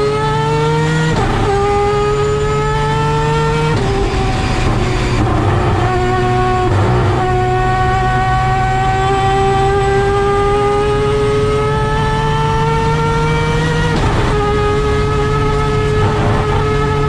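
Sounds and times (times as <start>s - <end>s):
rotary engine at full throttle: 0.0s - 17.0s.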